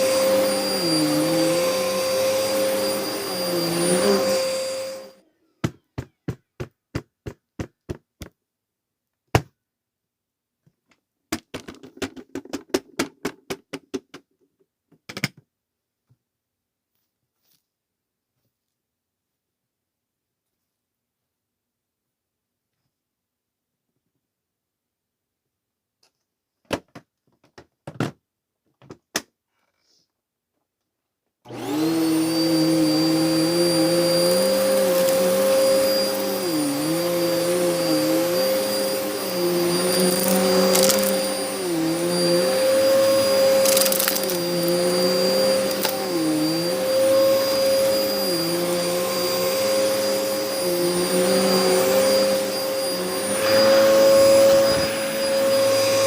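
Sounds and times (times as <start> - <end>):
vacuum cleaner running: 0.0 - 5.2, 31.5 - 56.0.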